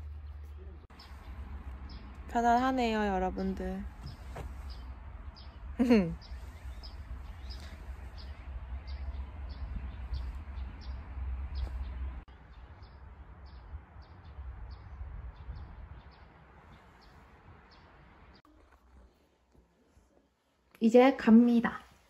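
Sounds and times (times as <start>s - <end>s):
small birds chirping: 0.0s - 18.5s
wind rumbling on microphone: 1.0s - 18.4s.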